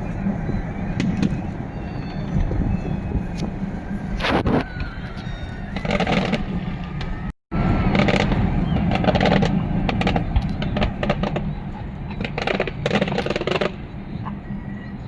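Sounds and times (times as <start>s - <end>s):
low rumble: 0.0s - 15.0s
fireworks pops and crackles: 4.1s - 4.9s, 5.8s - 7.2s, 7.9s - 11.5s, 12.1s - 13.8s.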